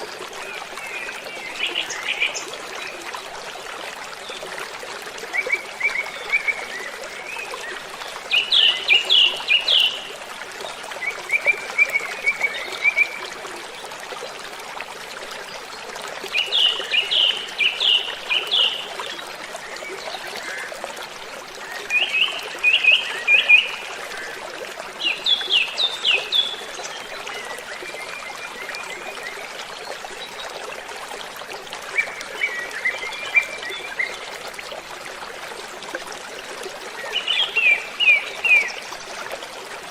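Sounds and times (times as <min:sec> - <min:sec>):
songbird singing: 0:07.7 - 0:10.1.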